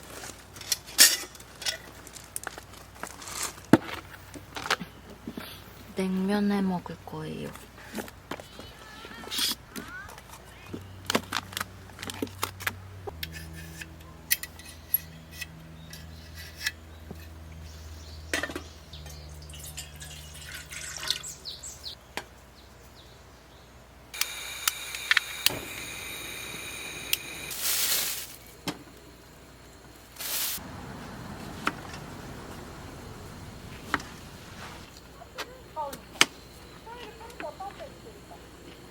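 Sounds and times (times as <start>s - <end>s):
short hissing bursts: 24.2s - 28.4s, 30.2s - 30.7s.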